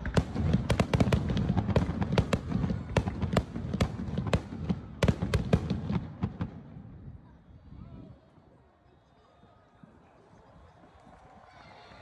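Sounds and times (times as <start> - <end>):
fireworks bangs and crackles: 0.0 - 7.3.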